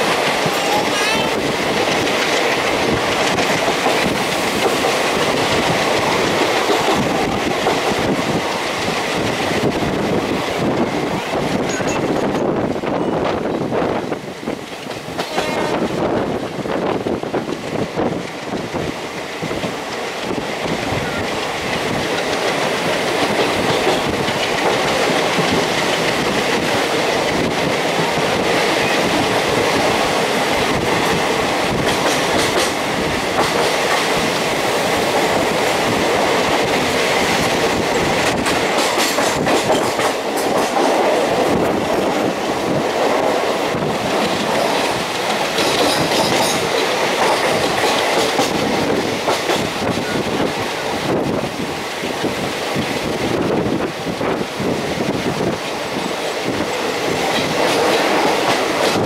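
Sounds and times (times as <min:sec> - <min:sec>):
wheels clicking over rail joints: 0:00.0 - 0:12.8, 0:17.3 - 0:50.8
train rumble inside carriage: 0:00.0 - 0:59.0.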